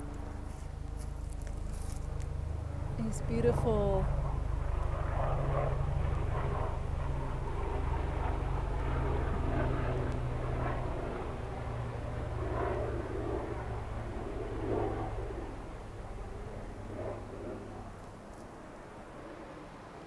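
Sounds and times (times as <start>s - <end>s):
distant motor droning: 0.0s - 19.8s
soft rustling: 0.4s - 2.3s.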